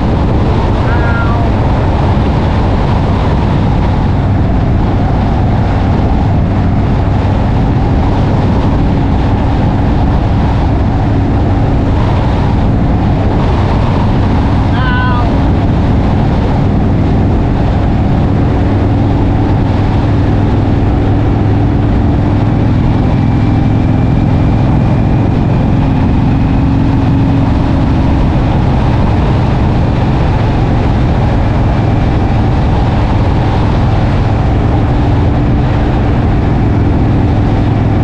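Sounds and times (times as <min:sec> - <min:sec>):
heavy wind noise: 0:00.0 - 0:38.0
motorcycle engine running: 0:00.0 - 0:38.0.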